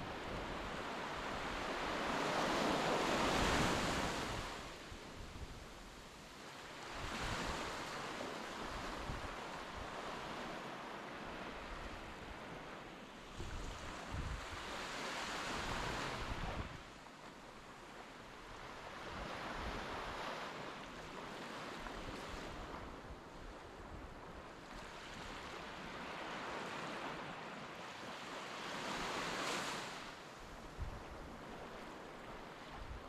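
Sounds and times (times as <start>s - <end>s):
wind buffeting microphone: 13.3s - 14.8s, 15.5s - 16.9s, 30.4s - 33.0s.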